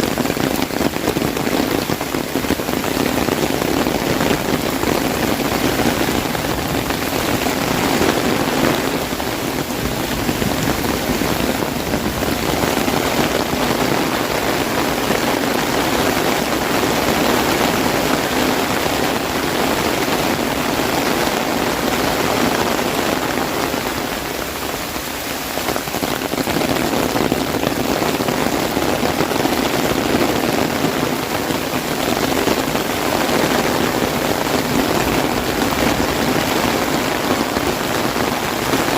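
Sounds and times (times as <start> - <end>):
heavy rain on an umbrella: 0.0 - 38.9.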